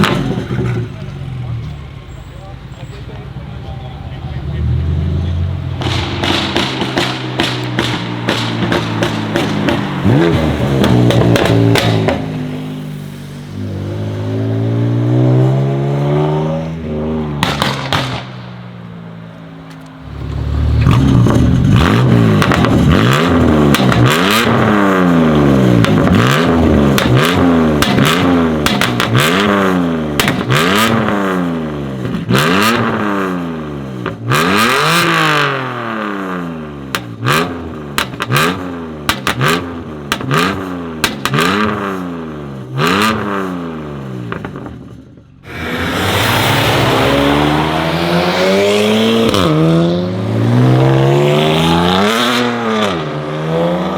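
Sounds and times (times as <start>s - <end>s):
exhaust pops and crackles: 0.0s - 1.1s, 5.7s - 12.3s, 17.4s - 18.5s, 20.8s - 24.6s, 25.8s - 29.5s, 30.1s - 31.1s, 36.9s - 37.3s, 37.9s - 41.8s, 44.2s - 45.2s
car engine revving hard: 4.5s - 18.2s, 20.0s - 44.4s, 45.4s - 53.9s.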